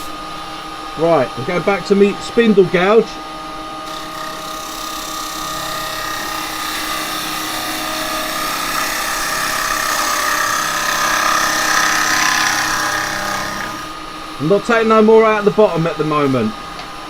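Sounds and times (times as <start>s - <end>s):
lathe motor hum: 3.8s - 17.0s
gouge cutting hiss: 3.9s - 16.4s.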